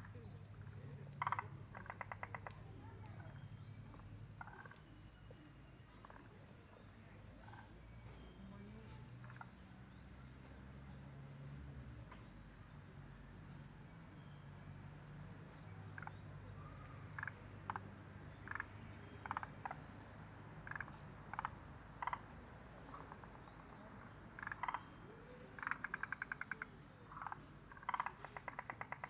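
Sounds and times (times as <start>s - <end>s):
frogs croaking: 0.0s - 11.3s, 12.7s - 29.0s
frog rattling pulse trains: 0.6s - 4.8s, 22.9s - 29.0s.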